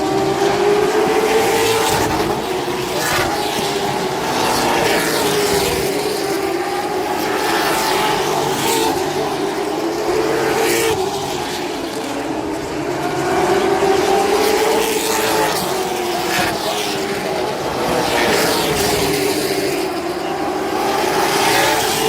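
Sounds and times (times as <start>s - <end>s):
cars passing close by: 0.0s - 22.0s
race car engines droning: 0.0s - 22.0s.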